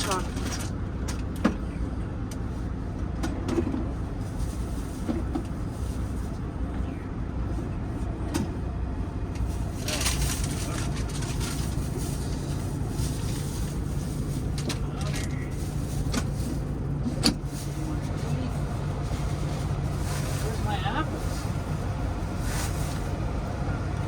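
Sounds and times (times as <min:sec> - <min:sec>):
engine idling: 0:00.0 - 0:24.0
rustling: 0:09.4 - 0:16.8.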